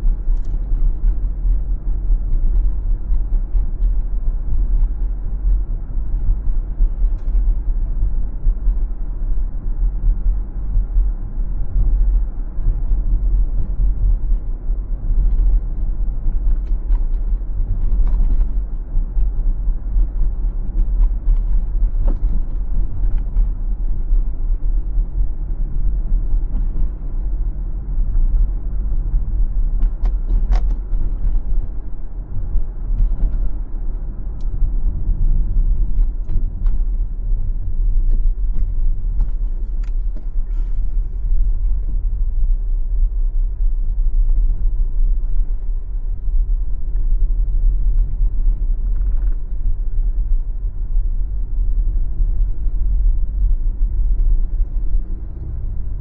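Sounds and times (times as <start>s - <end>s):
road and tyre rumble: 0.0s - 56.0s
light clicks and creaks: 35.5s - 42.8s.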